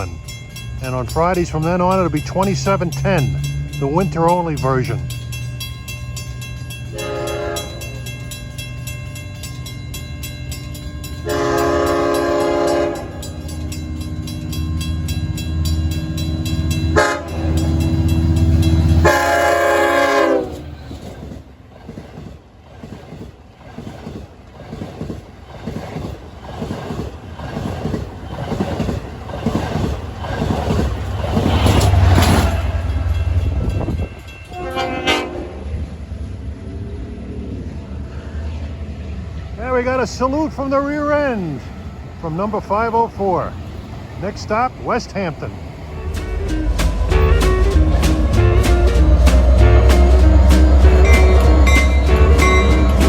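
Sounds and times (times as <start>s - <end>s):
crossing bell ringing: 0.0s - 21.1s, 30.7s - 35.9s, 39.6s - 53.0s
train wheels clacking on rail joints: 0.0s - 35.5s, 45.4s - 53.0s
locomotive rumble: 0.0s - 53.0s
train horn blasts: 6.9s - 8.0s, 11.2s - 13.4s, 16.6s - 20.7s, 34.5s - 35.8s, 45.9s - 53.0s.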